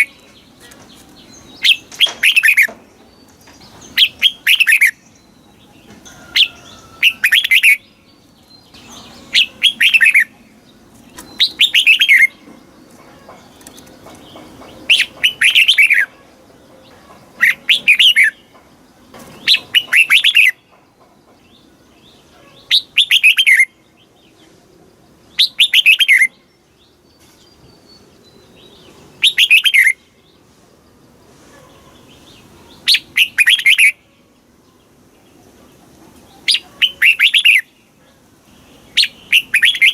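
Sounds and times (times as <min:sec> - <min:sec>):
bird singing whistled phrases: 0:29.2 - 0:30.0, 0:32.9 - 0:34.0, 0:39.0 - 0:39.9.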